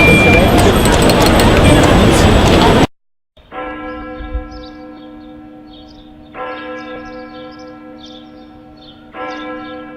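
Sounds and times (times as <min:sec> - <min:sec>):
church bell tolling: 0:03.4 - 0:09.9.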